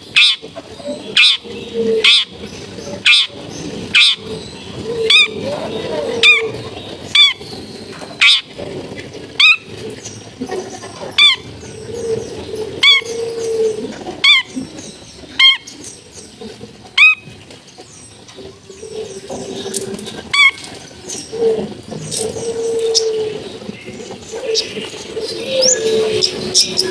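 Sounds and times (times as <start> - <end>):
steady background noise: 0.0 - 26.9
shrike harsh buzzy calls: 1.1 - 4.4.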